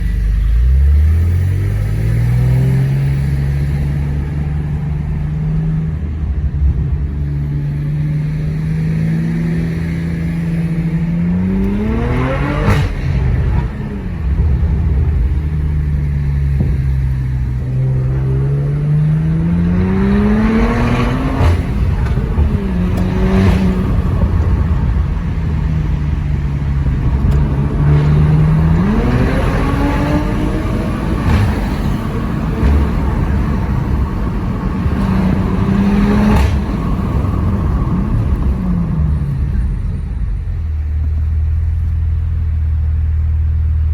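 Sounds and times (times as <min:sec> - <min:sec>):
car engine revving: 0:00.0 - 0:43.9
exhaust crack: 0:00.0 - 0:43.9.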